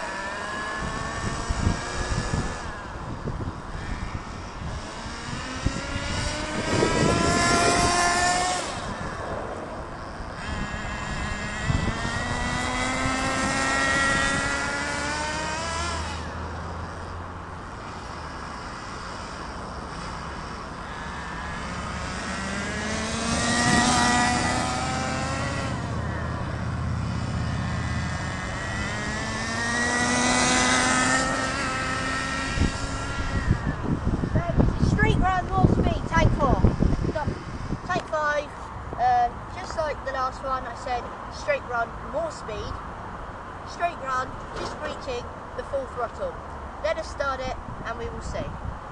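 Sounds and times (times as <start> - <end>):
nitro engine screaming: 0.0 - 38.4.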